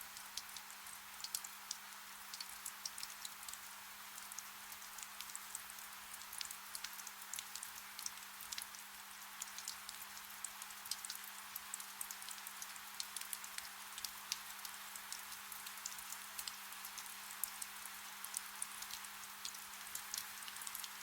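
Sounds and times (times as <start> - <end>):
soft rain hissing: 0.0 - 21.0
sharp raindrop ticks: 0.2 - 8.8, 9.4 - 21.0.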